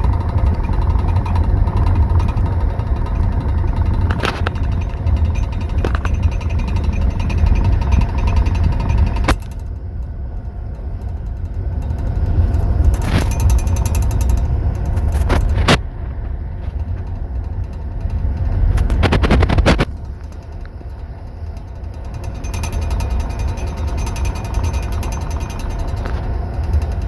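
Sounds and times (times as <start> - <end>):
train rumble: 0.0 - 27.0
wheels clacking over rail joints: 0.0 - 27.0.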